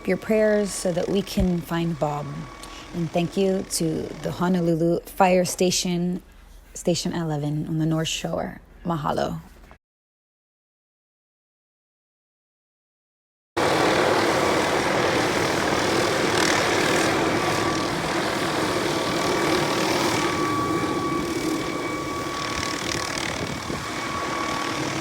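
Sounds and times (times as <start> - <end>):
helicopter engine and rotor: 0.0 - 5.1, 13.6 - 25.0
thin high whine: 0.0 - 7.1.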